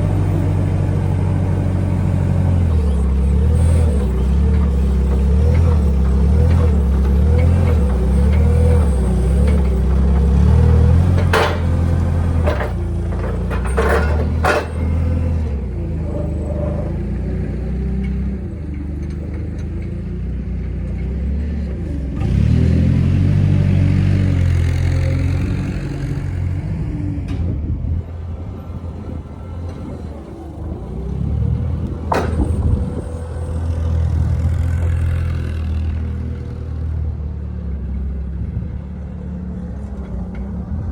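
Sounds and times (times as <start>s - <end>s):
large engine rumbling: 0.0s - 40.9s
sharp metallic knocks: 11.1s - 15.0s.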